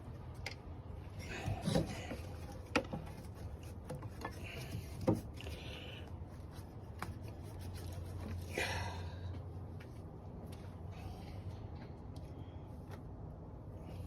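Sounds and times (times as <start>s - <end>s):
steady low hum: 0.0s - 14.0s
hands rubbing and scraping parts: 0.3s - 8.6s.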